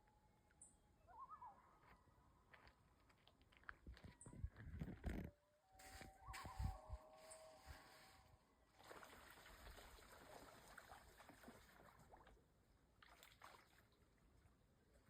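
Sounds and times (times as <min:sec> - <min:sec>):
water lapping with splashes: 0:08.7 - 0:14.4.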